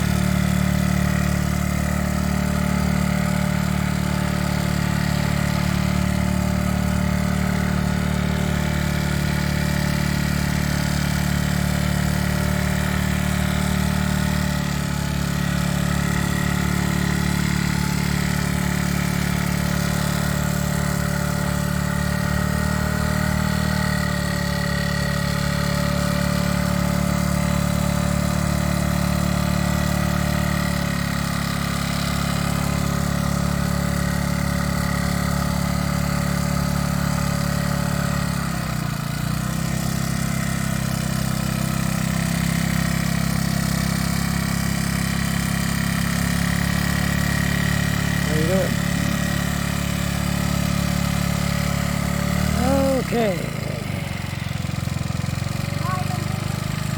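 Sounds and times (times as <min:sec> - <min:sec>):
motorbike engine idling: 0:00.0 - 0:56.9.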